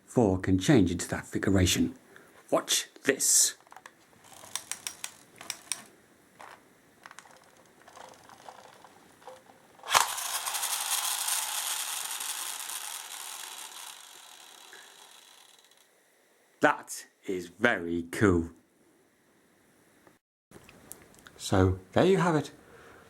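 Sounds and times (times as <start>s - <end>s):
plastic toy clicks: 3.6s - 15.8s
toy mechanism whirring and clicking: 3.6s - 15.9s.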